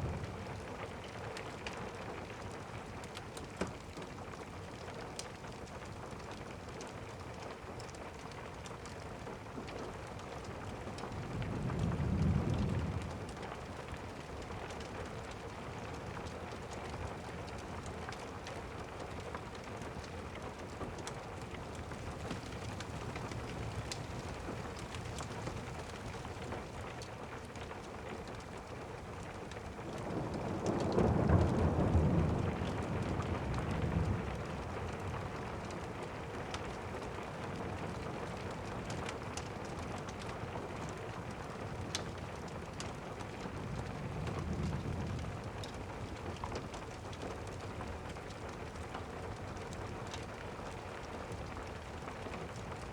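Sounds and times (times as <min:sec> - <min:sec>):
steady rain: 0:00.0 - 0:52.9
thunder rumbling: 0:11.2 - 0:13.3, 0:21.6 - 0:26.8, 0:29.8 - 0:35.2.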